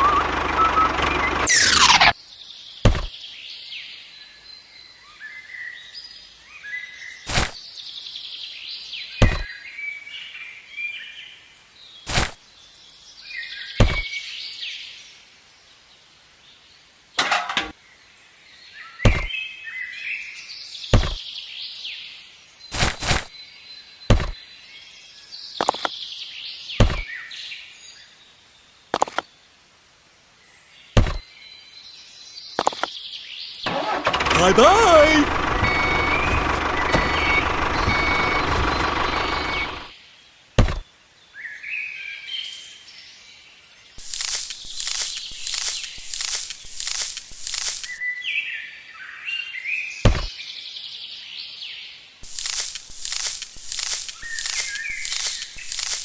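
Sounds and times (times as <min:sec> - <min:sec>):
birds chirping: 0:52.2 - 0:56.0.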